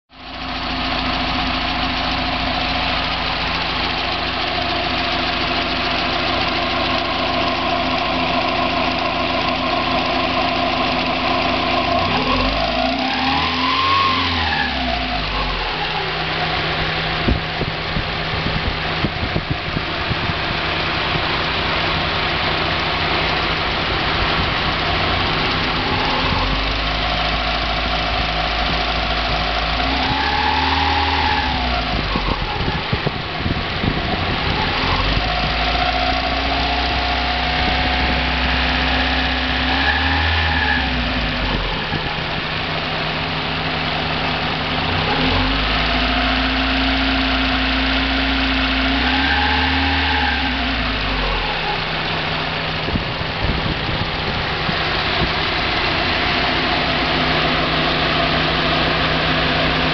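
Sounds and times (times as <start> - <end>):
car engine idling and revving: 0.1 - 59.9
engine rattle: 0.1 - 59.9.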